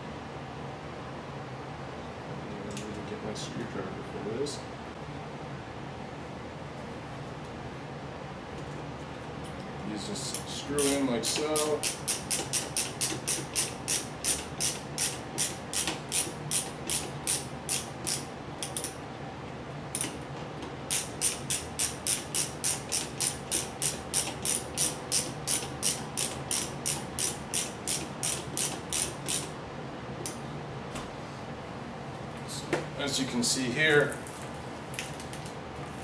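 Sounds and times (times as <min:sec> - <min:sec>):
ratcheting screwdriver clicking: 0:20.9 - 0:29.5.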